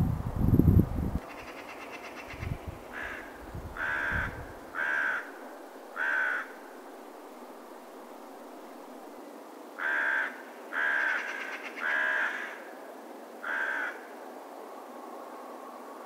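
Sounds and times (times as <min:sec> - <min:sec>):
faint steady hiss: 0:00.0 - 0:16.0
crow cawing: 0:01.3 - 0:05.4, 0:06.0 - 0:06.7, 0:09.8 - 0:12.7, 0:13.4 - 0:14.1.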